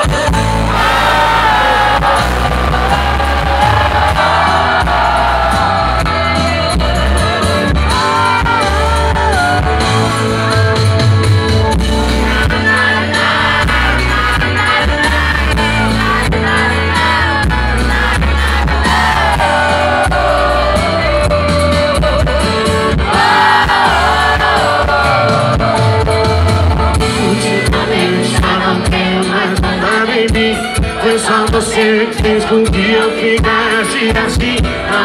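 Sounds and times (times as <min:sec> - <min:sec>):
live band music: 0:00.0 - 0:35.0
crowd shouts: 0:00.5 - 0:07.0, 0:12.2 - 0:21.0, 0:23.1 - 0:26.6.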